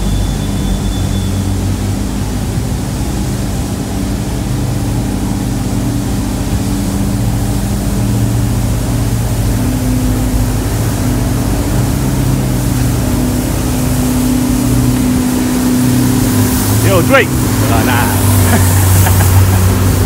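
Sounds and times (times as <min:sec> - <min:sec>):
car engine running low: 0:00.0 - 0:20.0.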